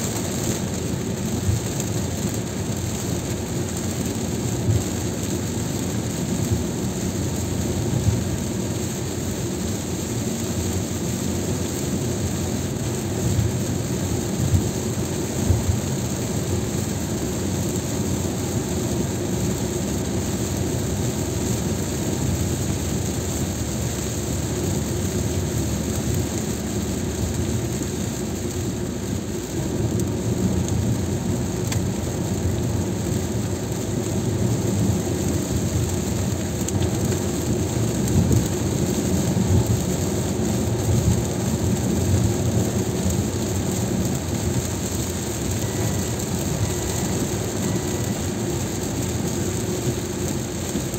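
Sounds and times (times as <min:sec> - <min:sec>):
rain hitting car: 0:00.0 - 0:50.9
tyres rumbling on wet road: 0:00.0 - 0:50.9.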